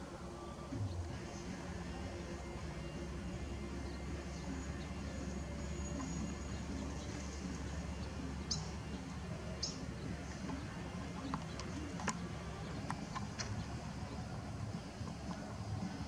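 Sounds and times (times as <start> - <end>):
steady low rumble: 0.0 - 16.0
high bird chirps: 3.8 - 11.8.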